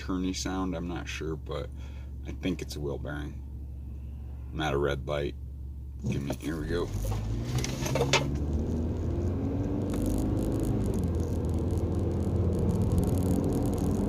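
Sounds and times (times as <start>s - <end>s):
deep low hum: 0.8s - 14.0s
car engine accelerating: 5.9s - 14.0s.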